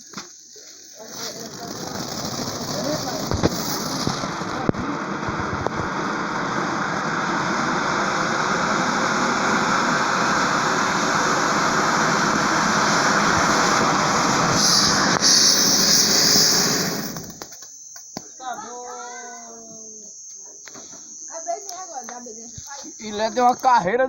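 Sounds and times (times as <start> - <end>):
loud hissing roar: 0.9 - 17.5.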